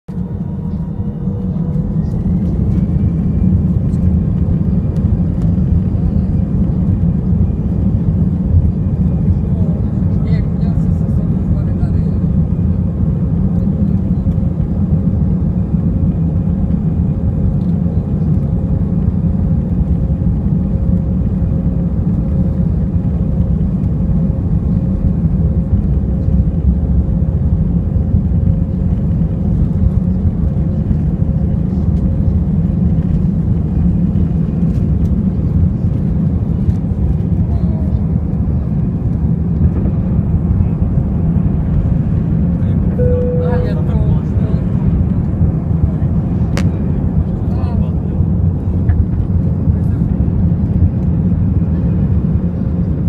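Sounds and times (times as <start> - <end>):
jet engines rumbling in cabin: 0.1 - 53.0
faint steady hum: 43.0 - 44.2.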